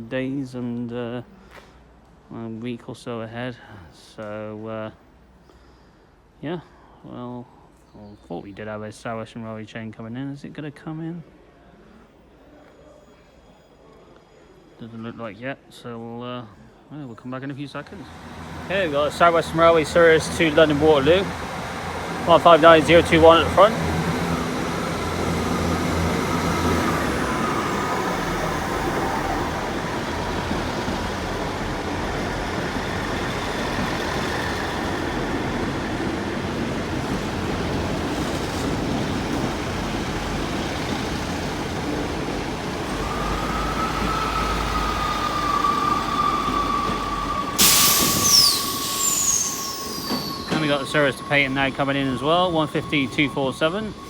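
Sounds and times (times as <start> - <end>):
diesel engines rumbling: 17.9 - 54.0
high squeals: 18.2 - 38.8, 41.4 - 54.0
loud hiss: 42.7 - 54.0
steady whine: 42.9 - 54.0.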